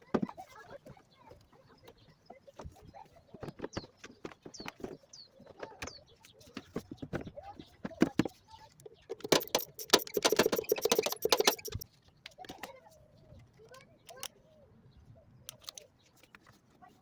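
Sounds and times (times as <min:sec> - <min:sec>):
bird chirps: 0:08.4 - 0:12.2
rapid metallic clicking and rattling: 0:09.0 - 0:11.8.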